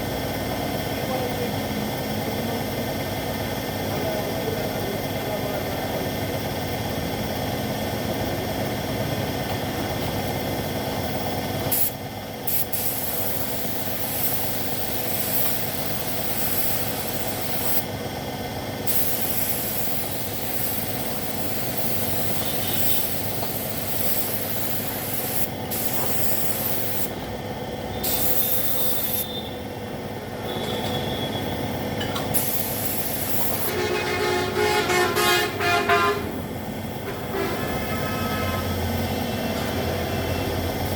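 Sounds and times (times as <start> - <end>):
machinery humming: 0.0 - 40.9
paint spray gun hissing: 11.7 - 18.0, 18.8 - 27.2, 28.0 - 29.4, 32.2 - 33.8
horn-like tone: 30.4 - 31.6, 33.7 - 36.4, 37.1 - 40.5.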